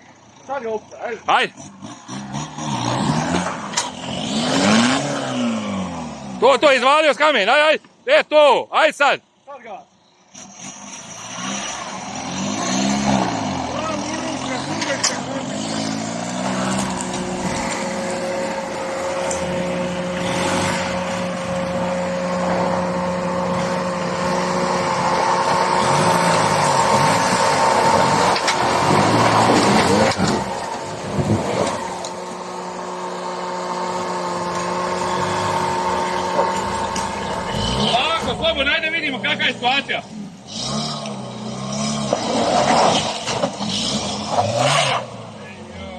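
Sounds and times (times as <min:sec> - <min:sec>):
off-road vehicle engine running: 0:09.2 - 0:45.9.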